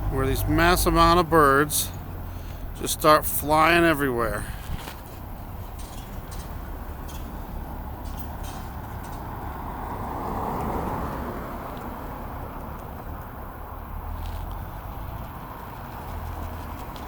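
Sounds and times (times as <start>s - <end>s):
distant road traffic: 0.0s - 17.0s
vehicle passing: 0.0s - 17.0s.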